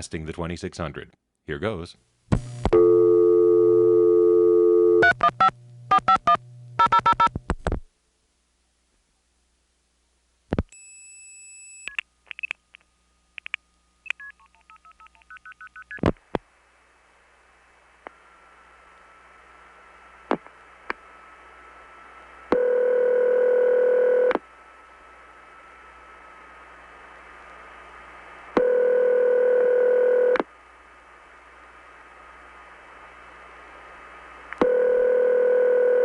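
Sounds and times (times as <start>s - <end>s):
steady telephone tone: 2.7s - 7.3s, 22.5s - 24.4s, 28.6s - 30.4s, 34.6s - 36.0s.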